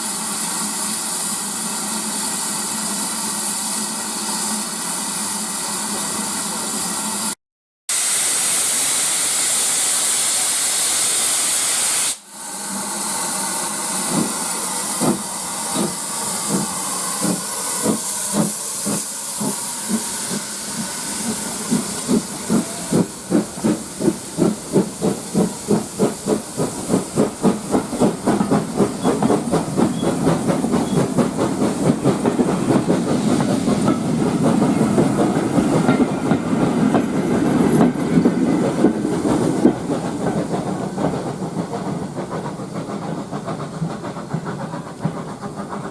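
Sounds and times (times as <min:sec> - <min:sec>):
steam hissing: 0:07.9 - 0:45.9
locomotive exhaust chuffs: 0:14.1 - 0:45.9.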